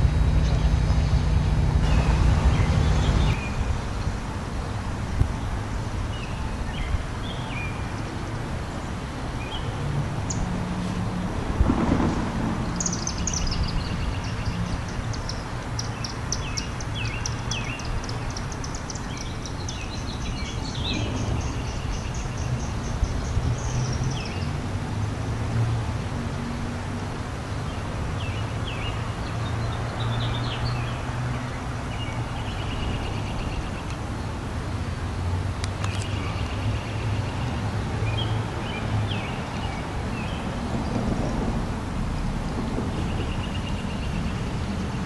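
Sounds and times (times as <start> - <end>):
rapid high repeated birdsong: 0.0 - 4.3, 12.6 - 24.6, 42.9 - 45.0
songbirds singing and chirping: 0.0 - 4.3, 5.6 - 10.5, 12.6 - 24.6, 27.5 - 34.8, 35.6 - 41.0, 42.8 - 45.0
low engine hum: 0.0 - 7.4.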